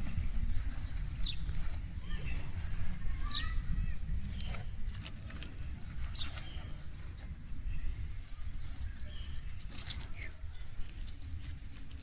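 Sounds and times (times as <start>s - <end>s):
dry leaves and sticks rustling: 0.0s - 12.0s
wind rumble on microphone: 0.0s - 12.0s
bird chirps: 0.7s - 1.5s, 3.2s - 4.6s, 6.0s - 10.4s.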